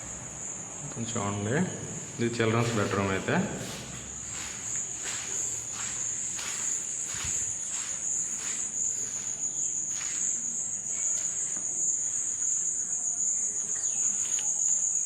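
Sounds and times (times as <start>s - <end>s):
insects chirring: 0.0s - 15.0s
faint footsteps: 1.8s - 11.8s.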